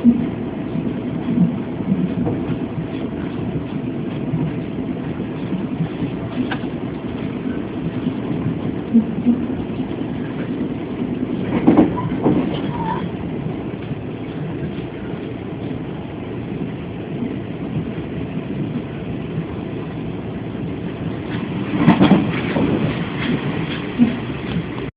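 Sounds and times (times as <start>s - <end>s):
train clatter: 0.0s - 24.9s
train rumble inside carriage: 0.0s - 24.9s.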